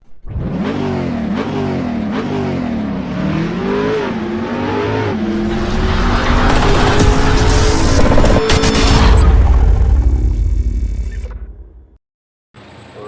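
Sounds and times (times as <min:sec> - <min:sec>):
engine revving: 0:00.0 - 0:11.6.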